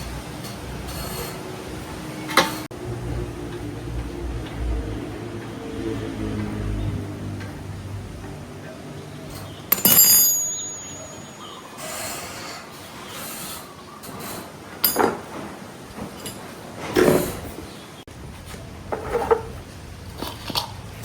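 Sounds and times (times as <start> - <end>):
metal clanking and knocking: 14.8 - 17.4.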